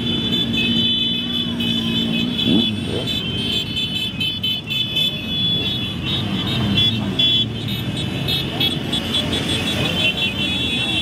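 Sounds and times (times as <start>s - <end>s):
motorcycles passing: 0.0s - 11.0s.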